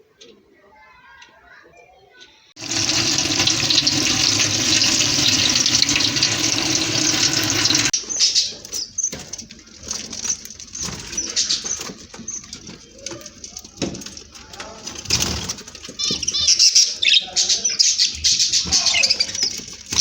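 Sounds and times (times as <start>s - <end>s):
cage birds chirping: 1.7s - 20.0s
running tap water: 2.6s - 8.0s
wings fluttering: 2.6s - 8.0s.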